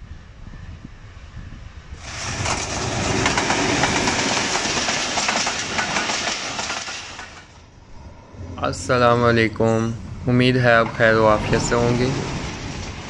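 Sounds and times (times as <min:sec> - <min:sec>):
passenger train passing: 0:00.0 - 0:13.0
wheels clattering over rail joints: 0:02.0 - 0:07.7, 0:10.6 - 0:13.0.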